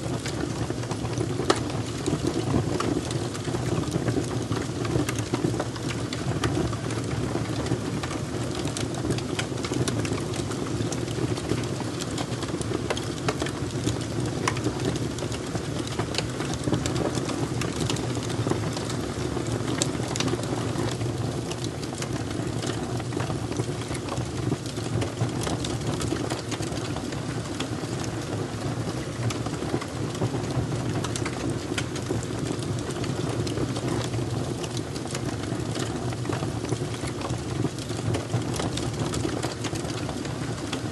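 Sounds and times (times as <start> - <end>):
fire crackling and popping: 0.0 - 40.9.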